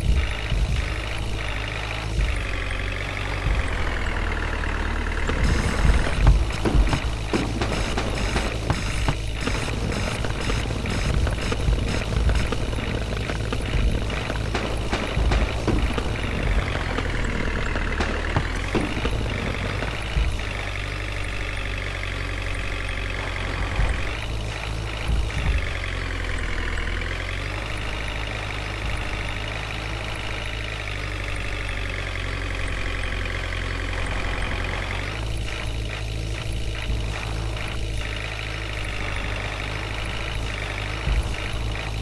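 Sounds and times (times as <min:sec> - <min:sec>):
diesel engine running: 0:00.0 - 0:42.0
short knocks: 0:05.2 - 0:20.6.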